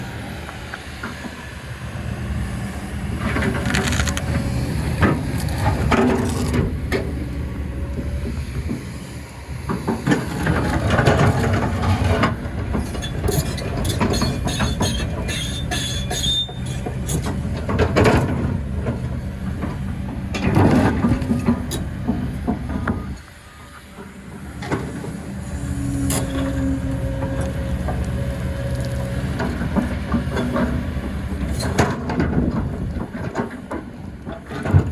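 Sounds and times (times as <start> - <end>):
diesel engine under load: 0.0 - 34.9
high metal squeals: 13.0 - 16.9.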